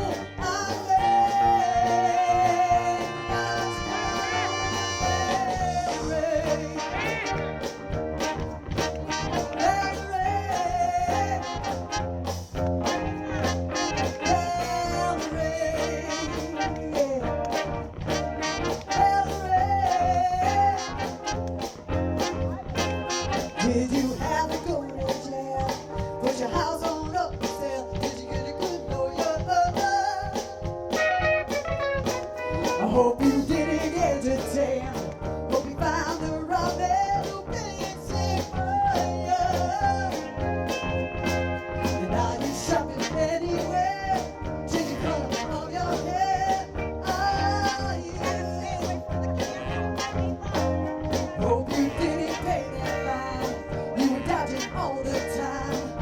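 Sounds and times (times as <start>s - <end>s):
bass line: 0.0s - 56.0s
drum beat: 0.0s - 56.0s
lead melody: 0.0s - 56.0s.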